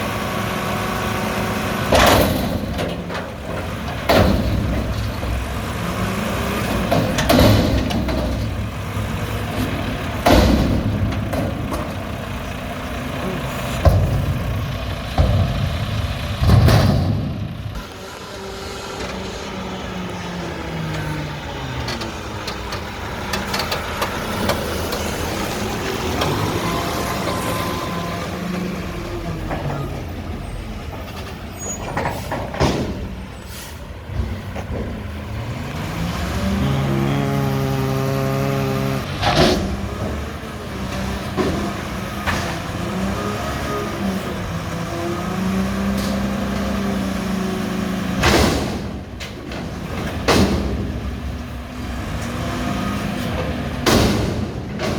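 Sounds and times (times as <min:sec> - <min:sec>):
garbage truck diesel engine revving: 0:00.0 - 0:54.9
air brake hisses: 0:33.4 - 0:33.9.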